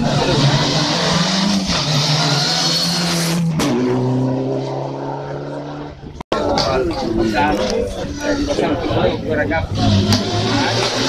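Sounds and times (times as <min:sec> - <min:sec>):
race car engine accelerating: 0:00.0 - 0:06.2, 0:09.4 - 0:11.0.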